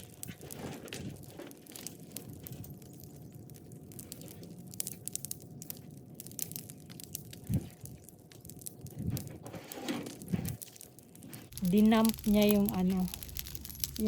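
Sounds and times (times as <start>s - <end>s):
bonfire crackling and popping: 0.0s - 14.0s.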